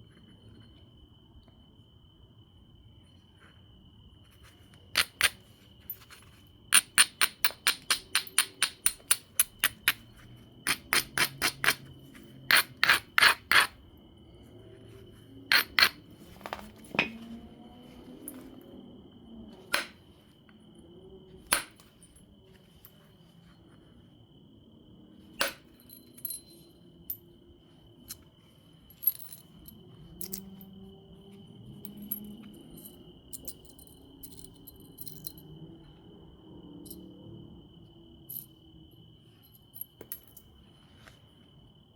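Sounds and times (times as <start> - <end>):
stone knapping clicks: 6.8 - 10.0, 10.7 - 11.8.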